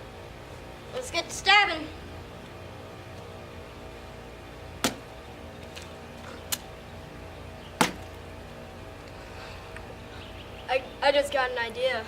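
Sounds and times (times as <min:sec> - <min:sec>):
metal pole stabbing watermelon: 0:04.8 - 0:05.1, 0:07.8 - 0:08.2.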